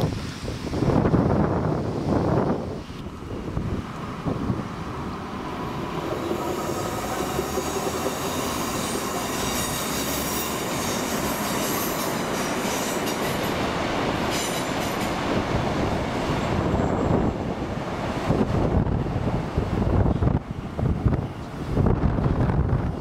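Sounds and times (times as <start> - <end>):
train running on rails: 0.0 - 23.0
metallic wheel squeal: 6.2 - 13.1.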